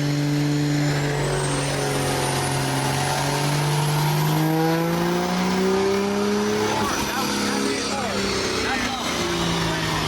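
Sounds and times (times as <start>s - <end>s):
diesel truck engine running hard: 0.0s - 10.0s.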